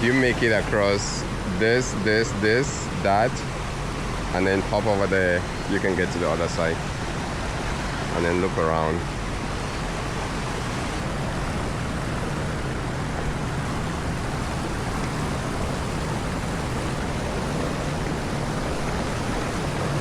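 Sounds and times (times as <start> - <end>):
waterfall rushing over rocks: 0.0 - 20.0.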